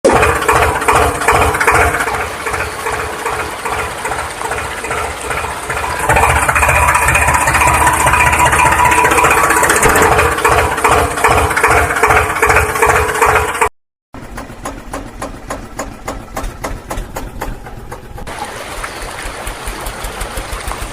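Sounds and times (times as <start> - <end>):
tractor engine idling: 0.0 - 20.9.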